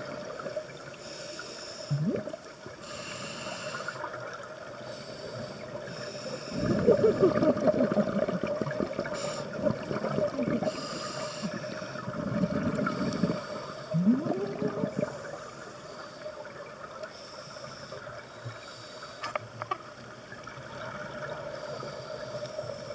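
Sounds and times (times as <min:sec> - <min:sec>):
regulator bubbling exhalations: 0:01.9 - 0:02.4, 0:06.5 - 0:10.8, 0:12.2 - 0:15.3
hiss of inhaled air: 0:02.8 - 0:04.1, 0:04.8 - 0:07.4, 0:09.2 - 0:09.6, 0:10.6 - 0:12.1.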